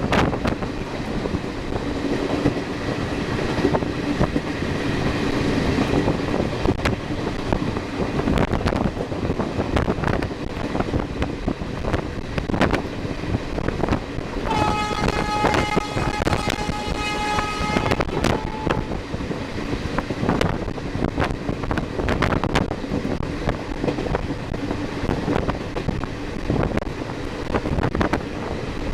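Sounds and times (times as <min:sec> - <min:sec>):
train passing at speed: 0:00.0 - 0:28.9
locomotive horn: 0:14.5 - 0:19.0.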